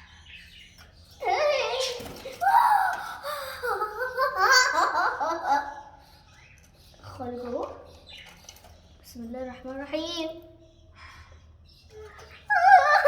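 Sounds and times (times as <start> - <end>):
young woman laughing and giggling: 2.9 - 5.9.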